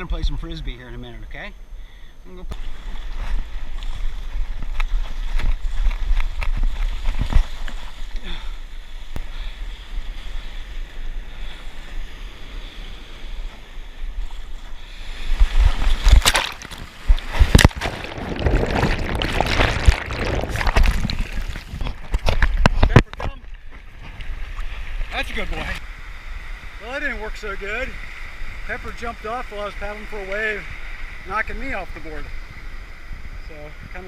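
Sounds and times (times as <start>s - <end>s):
wind buffeting microphone: 15.1s - 25.8s
splashing whitewater: 15.6s - 22.4s.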